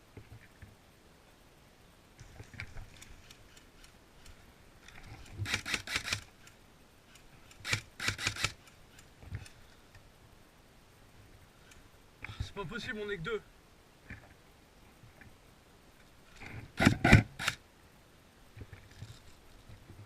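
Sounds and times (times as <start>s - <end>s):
airsoft rifle shots: 5.4s - 6.3s, 7.6s - 8.6s.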